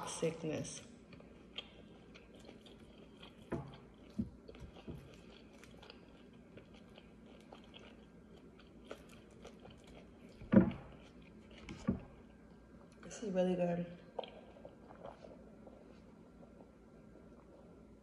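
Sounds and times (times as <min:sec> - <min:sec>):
person chewing salad: 0:01.0 - 0:13.0, 0:14.0 - 0:18.0.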